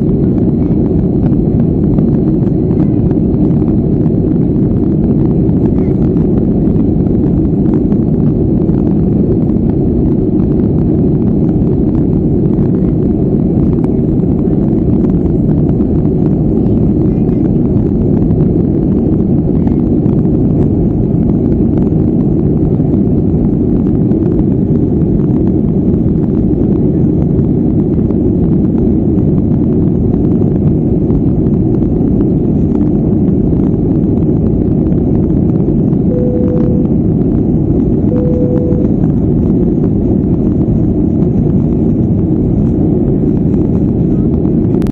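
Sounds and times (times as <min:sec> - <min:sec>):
faint high whine: 0:00.0 - 0:17.9, 0:35.5 - 0:44.9
airplane cabin engine rumble: 0:00.0 - 0:44.9.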